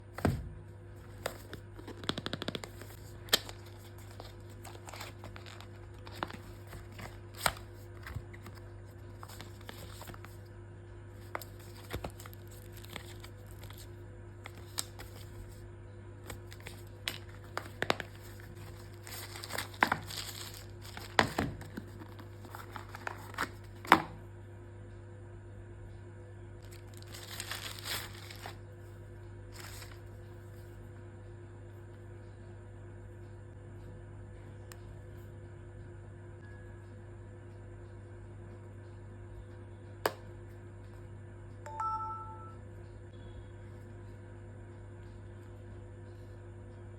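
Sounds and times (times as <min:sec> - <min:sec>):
steady low hum: 0:00.0 - 0:46.9
packaging clicks and taps: 0:01.1 - 0:08.6, 0:16.3 - 0:24.1
plastic and paper crinkling: 0:01.1 - 0:10.4, 0:11.2 - 0:15.6, 0:16.3 - 0:24.0, 0:26.6 - 0:28.6, 0:29.5 - 0:30.0.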